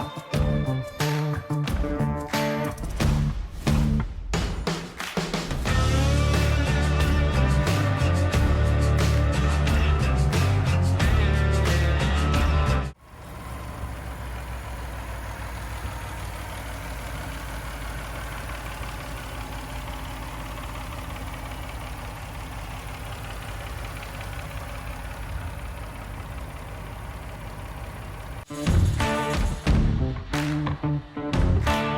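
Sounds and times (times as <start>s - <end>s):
truck engine idling: 5.7s - 29.6s.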